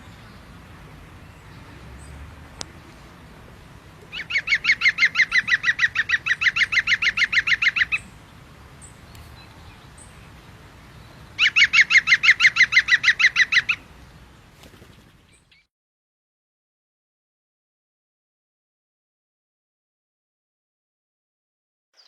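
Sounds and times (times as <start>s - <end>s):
animal calling with repeated notes: 4.0s - 8.1s, 11.4s - 13.8s.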